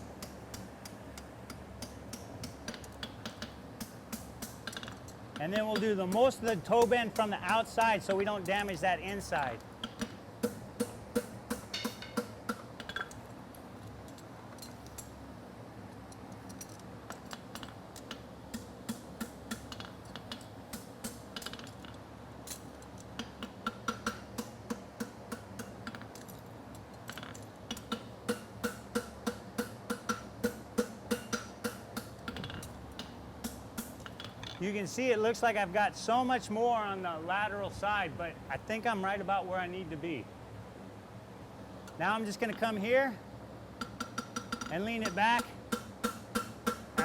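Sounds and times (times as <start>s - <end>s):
steady fan hum: 0.0s - 47.0s
hammer striking steel on anvil: 9.8s - 13.1s, 27.8s - 34.6s, 43.8s - 47.0s.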